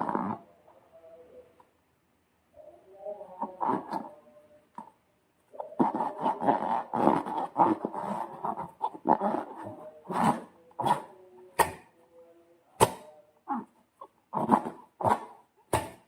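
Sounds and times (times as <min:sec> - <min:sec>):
rubbery balloon squeaks: 0:00.0 - 0:00.5, 0:03.4 - 0:04.1, 0:05.5 - 0:11.8, 0:12.8 - 0:16.0.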